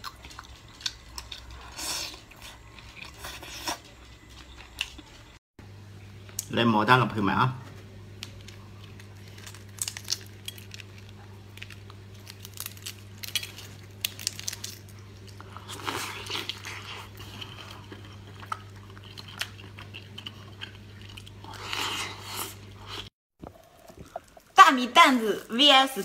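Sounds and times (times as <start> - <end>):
wet chewing and crunching: 0.0 - 5.4, 8.2 - 24.6
eggshell cracking: 8.2 - 15.3.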